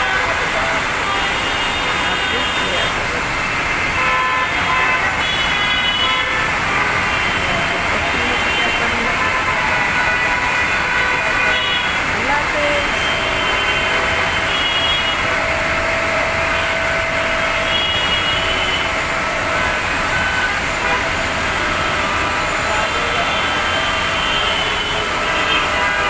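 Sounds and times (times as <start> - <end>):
road traffic: 0.0 - 26.0
heavy rain hissing: 0.1 - 25.8.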